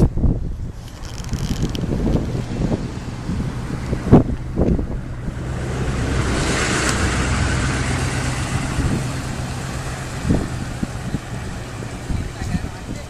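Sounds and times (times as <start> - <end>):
road noise: 0.0 - 13.0
vehicle engine hum: 0.0 - 13.0
vehicle passing: 0.8 - 13.0.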